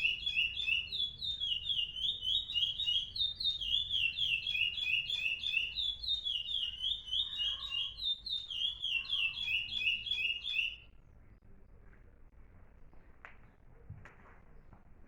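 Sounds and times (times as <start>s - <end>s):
songbird whistling: 0.0s - 10.9s.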